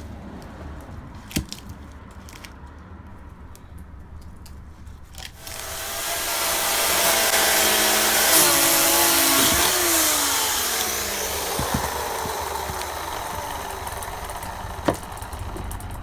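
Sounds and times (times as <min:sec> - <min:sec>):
chainsaw revving: 0:05.4 - 0:16.0.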